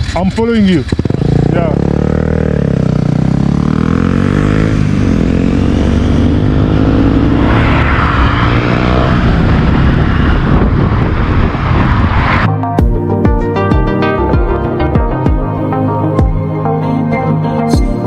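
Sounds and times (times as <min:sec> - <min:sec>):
wind and road noise: 0:00.0 - 0:13.0
motorcycle engine accelerating: 0:00.0 - 0:18.0
music: 0:12.5 - 0:18.0.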